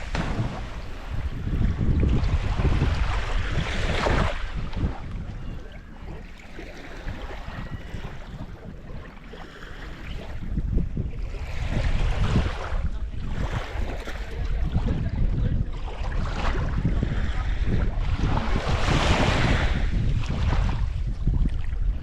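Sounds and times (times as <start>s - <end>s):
water washing: 0.0s - 3.5s
wind buffeting microphone: 0.0s - 22.0s.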